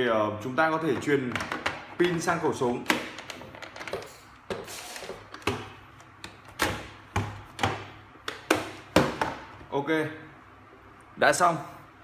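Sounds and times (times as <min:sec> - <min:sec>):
hard plastic parts knocking and clicking: 0:00.9 - 0:09.6.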